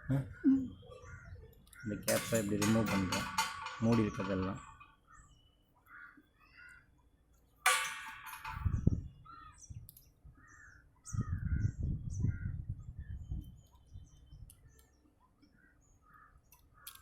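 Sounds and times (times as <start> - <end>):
birds chirping: 0.0 - 17.0
low rumbling handling noise: 2.0 - 4.9, 7.7 - 9.2
sharp scraping clatter: 2.0 - 4.9.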